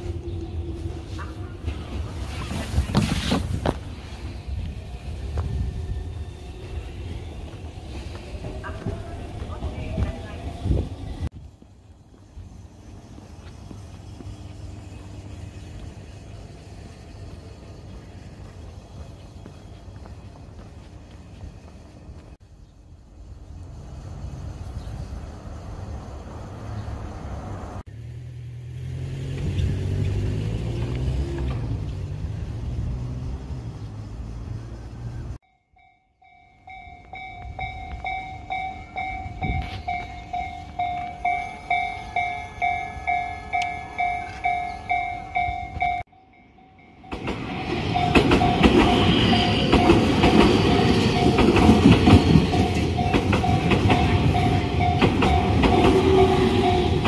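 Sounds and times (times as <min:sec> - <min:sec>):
level-crossing warning bell: 0:35.4 - 0:57.0
train wheels clattering: 0:47.0 - 0:57.0.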